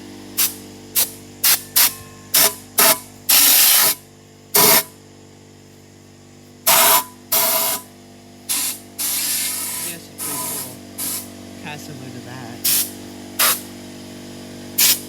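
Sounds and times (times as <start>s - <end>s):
steady low hum: 0.0s - 15.0s
spraying hiss bursts: 0.4s - 4.9s, 6.6s - 7.9s, 8.5s - 11.4s, 12.6s - 13.7s, 14.8s - 15.0s.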